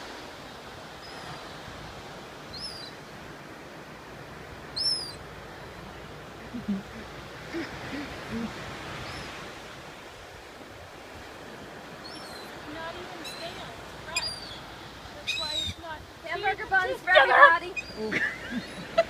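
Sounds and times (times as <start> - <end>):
surf and wind hiss: 0.0 - 19.0
gulls crying: 12.0 - 19.0.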